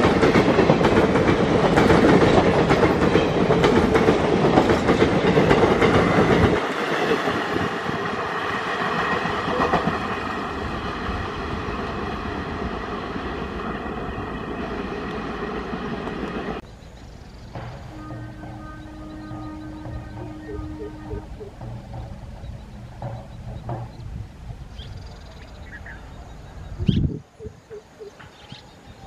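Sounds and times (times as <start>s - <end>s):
train wheels clattering: 0.0s - 10.3s, 17.4s - 25.0s.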